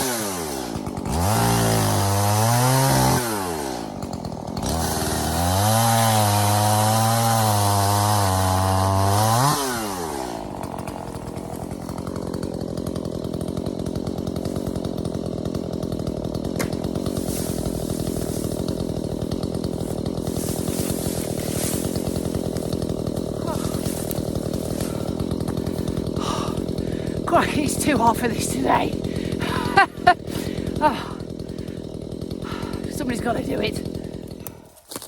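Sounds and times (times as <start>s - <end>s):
chainsaw cutting wood: 0.0s - 35.0s.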